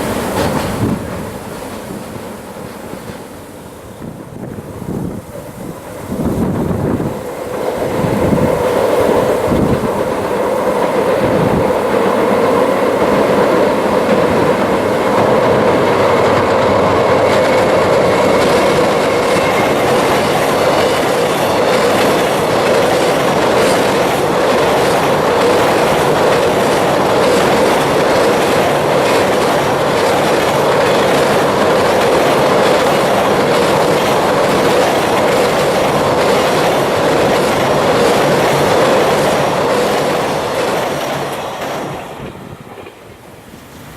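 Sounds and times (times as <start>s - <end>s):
wheels clattering over rail joints: 0.0s - 3.4s
freight train rumbling on bridge: 0.0s - 43.9s.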